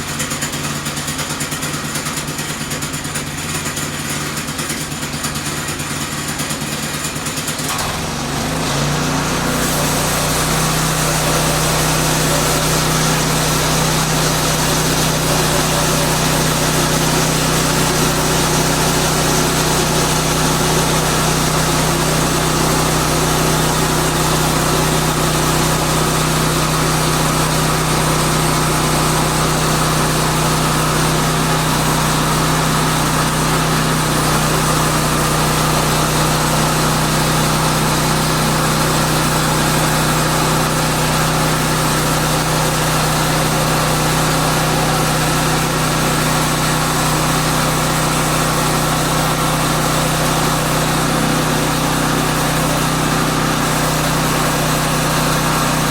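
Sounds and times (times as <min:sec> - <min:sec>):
sawmill gas engine running: 0:00.0 - 0:55.9.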